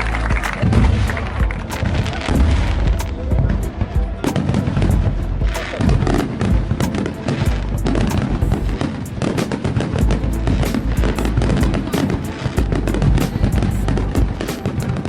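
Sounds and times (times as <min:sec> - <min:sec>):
fireworks cracks and pops: 0:00.0 - 0:03.3
deep fireworks booms: 0:00.3 - 0:15.0.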